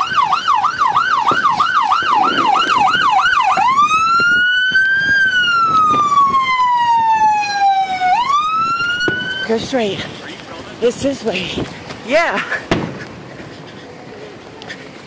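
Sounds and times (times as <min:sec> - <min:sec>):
electronic siren yelp and wail: 0:00.0 - 0:09.6.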